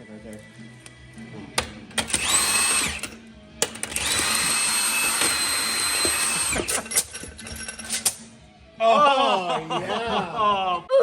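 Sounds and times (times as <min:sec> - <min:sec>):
power tool whining: 0:02.0 - 0:03.2, 0:03.8 - 0:07.0.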